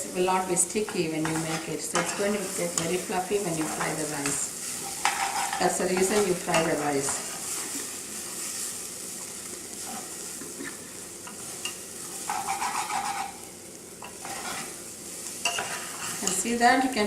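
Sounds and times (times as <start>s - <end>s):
rice sizzling in a pan: 0.0s - 17.0s
spoon stirring and scraping: 0.8s - 10.2s, 11.2s - 14.8s, 15.4s - 16.5s.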